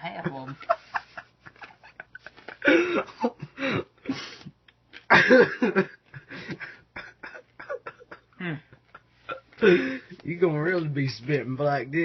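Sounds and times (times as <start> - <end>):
man coughing and gagging: 2.6 - 4.3, 5.1 - 10.1.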